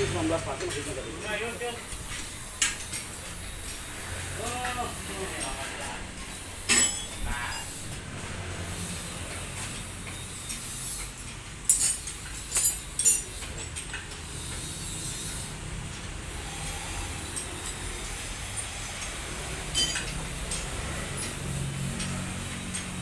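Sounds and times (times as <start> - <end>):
low workshop hum: 0.0 - 23.0
sharp metallic clinks: 6.3 - 8.0, 18.6 - 23.0.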